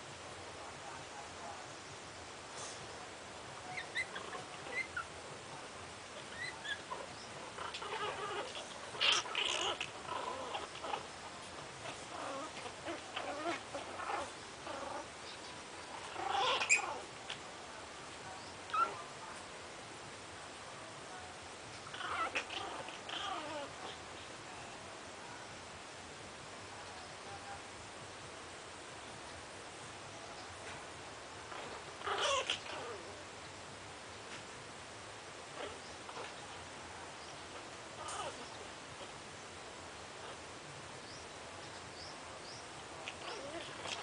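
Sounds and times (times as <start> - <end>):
puppies squeaking and whimpering: 3.7 - 5.1, 6.2 - 11.1, 11.8 - 15.1, 16.0 - 17.1, 21.8 - 24.0, 31.6 - 33.0, 38.0 - 38.5, 43.0 - 44.0.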